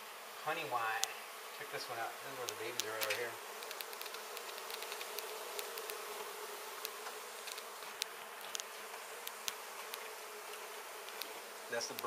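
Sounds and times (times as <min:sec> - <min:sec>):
bee colony buzzing: 0:00.0 - 0:12.0
sharp ticks: 0:02.4 - 0:06.1, 0:06.8 - 0:12.0.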